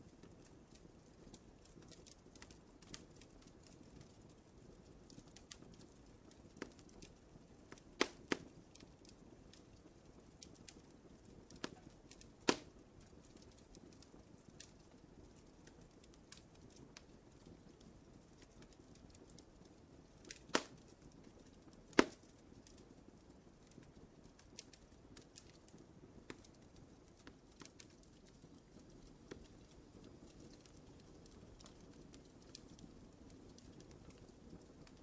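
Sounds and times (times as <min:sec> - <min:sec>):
wood fire crackling: 0:00.0 - 0:35.0
loud fire pops: 0:07.7 - 0:08.9, 0:11.4 - 0:13.7, 0:20.2 - 0:21.2, 0:21.9 - 0:22.8.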